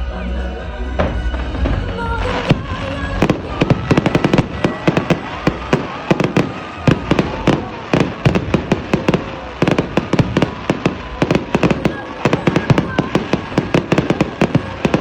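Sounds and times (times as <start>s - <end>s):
fireworks bangs and crackles: 1.0s - 15.0s.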